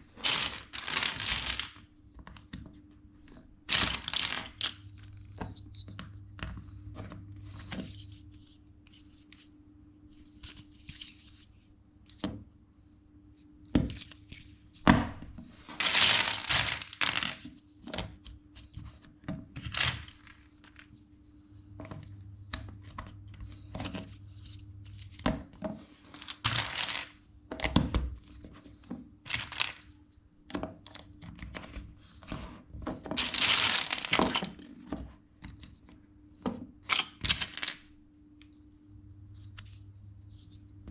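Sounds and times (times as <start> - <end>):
plastic bricks rustling: 0.2 - 1.8, 3.7 - 5.8, 15.7 - 17.6, 19.6 - 21.0, 26.1 - 27.2, 29.3 - 29.9, 33.0 - 34.6, 36.9 - 37.9
plastic bricks clicking together: 0.2 - 2.4.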